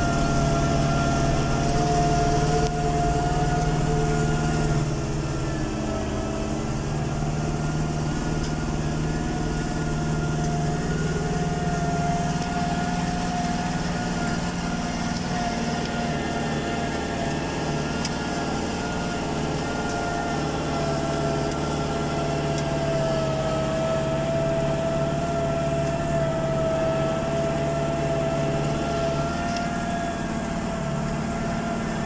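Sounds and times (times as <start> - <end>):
steady high whine: 0.0 - 25.3
tractor engine running: 0.0 - 32.0.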